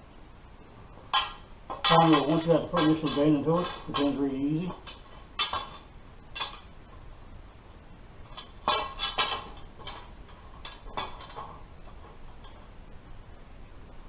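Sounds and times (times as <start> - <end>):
steel pipe clanking on metal: 1.1 - 6.7, 8.2 - 12.7.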